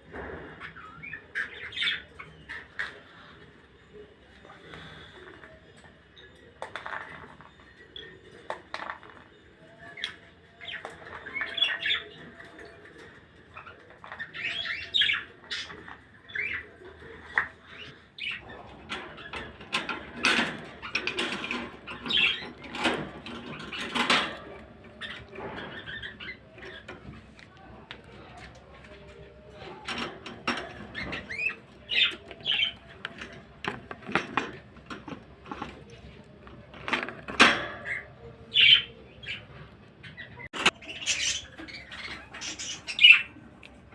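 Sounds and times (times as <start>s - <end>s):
small birds chirping: 0.0s - 43.9s
sharp clicks and rustles: 18.4s - 38.1s.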